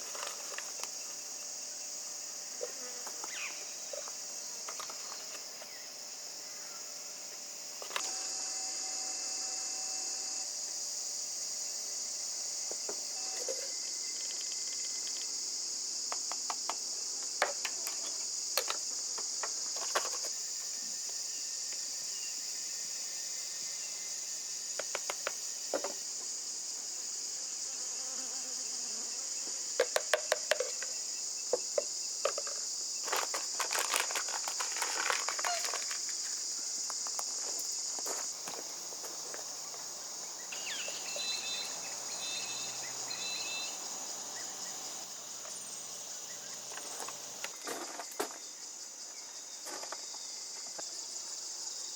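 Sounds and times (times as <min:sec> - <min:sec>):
insects chirping: 0:00.0 - 0:51.9.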